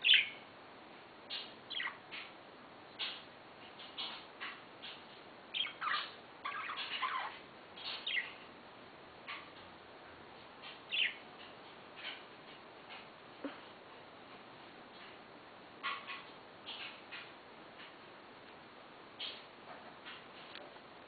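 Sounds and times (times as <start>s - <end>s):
budgerigars chirping: 0.0s - 0.4s, 1.3s - 2.4s, 3.0s - 8.5s, 10.6s - 12.2s, 15.8s - 17.3s.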